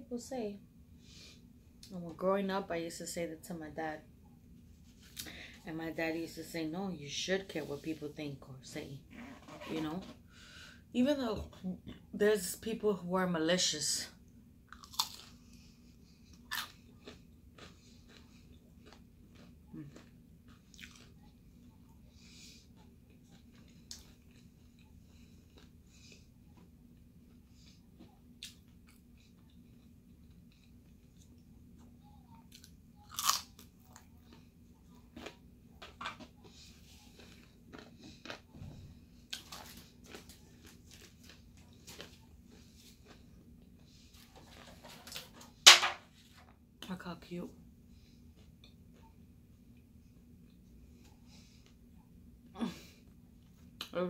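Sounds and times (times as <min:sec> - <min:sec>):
crispy food crunching: 0:14.7 - 0:15.6, 0:16.3 - 0:22.0, 0:22.7 - 0:31.5, 0:32.4 - 0:45.3
quiet chewing: 0:14.7 - 0:45.3, 0:47.9 - 0:54.0.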